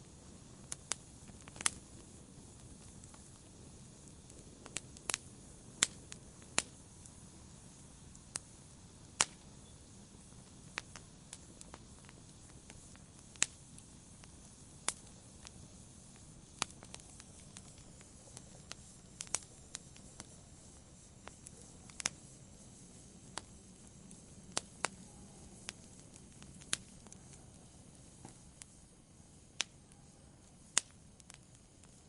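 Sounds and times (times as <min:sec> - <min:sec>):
soft steady hiss: 0:00.0 - 0:32.0
wood fire crackling: 0:00.0 - 0:32.0
sharp pops: 0:00.6 - 0:03.4, 0:05.8 - 0:06.8, 0:09.1 - 0:27.3.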